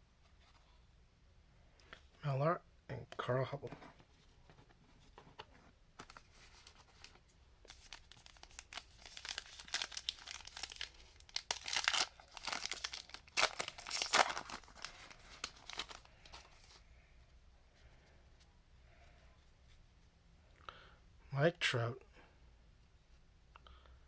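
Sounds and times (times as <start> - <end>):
card pack wrapper crinkling: 6.0 - 16.8.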